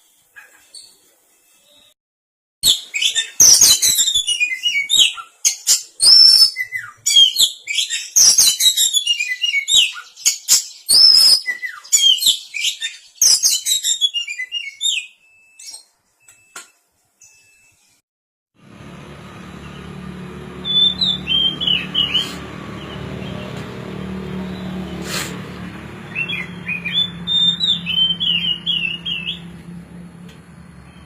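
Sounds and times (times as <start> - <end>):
bird singing varied whistles: 2.6 - 16.6, 20.6 - 22.4, 26.1 - 29.5.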